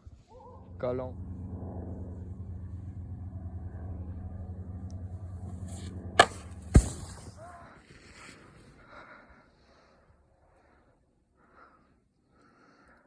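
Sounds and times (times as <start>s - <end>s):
steady low hum: 0.0s - 7.5s
snowboard hitting truck bed: 5.5s - 7.5s.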